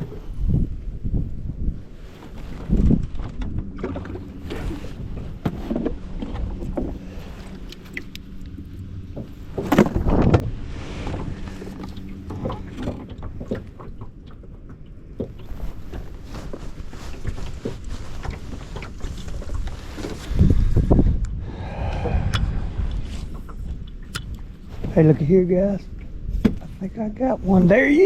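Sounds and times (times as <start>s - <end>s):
water noise: 0.0s - 28.0s
small knocks on a boat: 9.1s - 10.5s, 11.2s - 16.0s, 26.4s - 26.7s.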